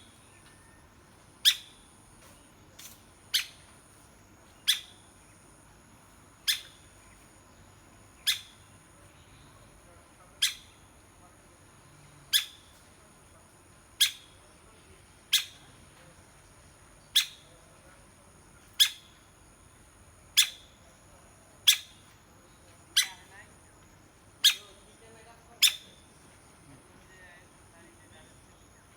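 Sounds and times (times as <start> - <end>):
woodpecker call notes: 0.0 - 2.0, 2.8 - 3.7, 4.4 - 5.4, 6.4 - 9.6, 10.4 - 11.0, 12.2 - 12.8, 14.0 - 14.6, 15.2 - 15.8, 17.0 - 17.7, 18.6 - 19.4, 20.3 - 20.9, 21.6 - 26.4.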